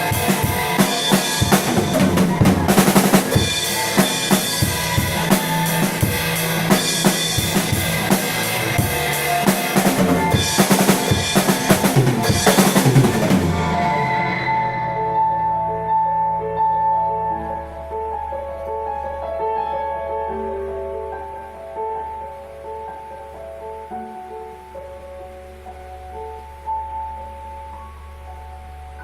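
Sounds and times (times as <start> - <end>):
drum kit playing: 0.0 - 16.0
backing music: 0.0 - 29.0.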